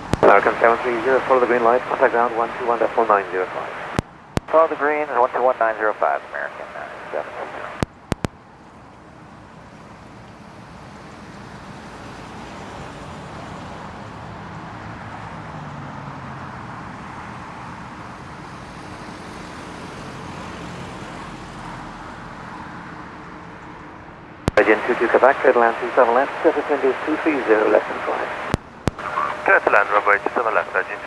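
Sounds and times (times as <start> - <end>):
jet engines roaring on landing: 0.2 - 4.0.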